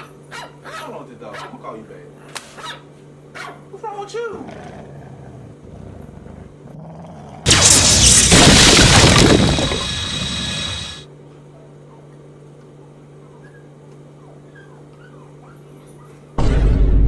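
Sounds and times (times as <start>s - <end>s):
loud crash with shattering: 7.5s - 11.0s
steady low hum: 7.5s - 11.0s.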